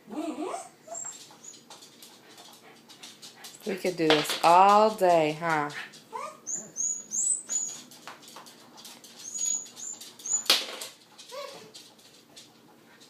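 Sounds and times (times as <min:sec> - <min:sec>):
dog whimpering: 0:00.0 - 0:01.7, 0:06.1 - 0:07.8, 0:09.2 - 0:10.4, 0:11.3 - 0:11.8.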